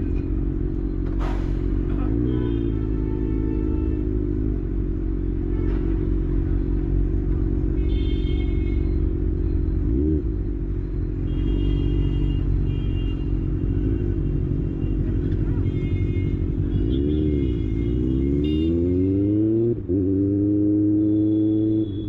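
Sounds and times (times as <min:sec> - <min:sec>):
high-pitched horn honks: 0:02.0 - 0:04.3, 0:14.9 - 0:19.1
engine revving: 0:16.4 - 0:22.0.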